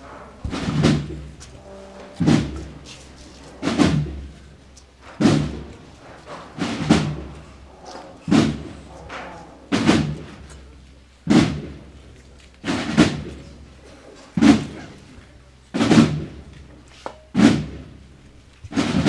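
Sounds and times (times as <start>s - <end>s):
heavy drum beats: 0.0s - 12.0s.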